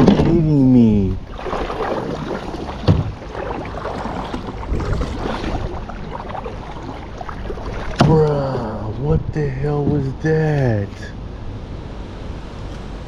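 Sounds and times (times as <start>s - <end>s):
water rushing and splashing: 0.0s - 9.2s
knock on kayak: 1.3s - 8.6s.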